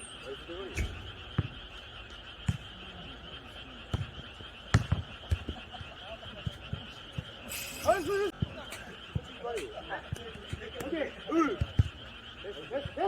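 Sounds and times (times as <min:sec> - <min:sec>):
frogs calling: 0:00.0 - 0:13.0
ball kicked and bouncing: 0:00.8 - 0:01.6, 0:02.4 - 0:02.8, 0:03.9 - 0:07.4, 0:08.3 - 0:12.1.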